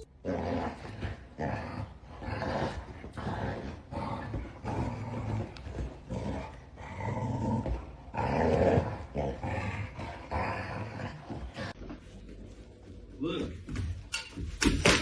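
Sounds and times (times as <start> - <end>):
dog growling: 0.1 - 11.8.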